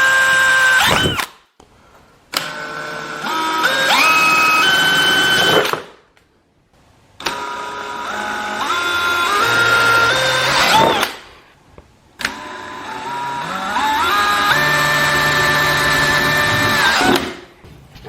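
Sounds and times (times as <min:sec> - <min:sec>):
electric drill motor whining: 0:00.0 - 0:01.3, 0:02.4 - 0:05.8, 0:07.2 - 0:11.2, 0:12.2 - 0:17.4.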